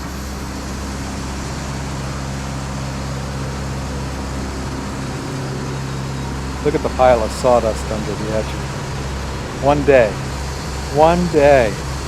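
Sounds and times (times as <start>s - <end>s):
sawmill machinery humming: 0.0s - 12.0s.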